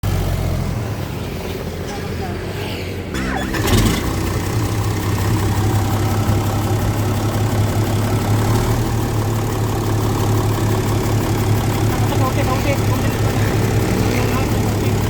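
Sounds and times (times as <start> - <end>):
diesel truck engine idling: 3.2 - 15.0.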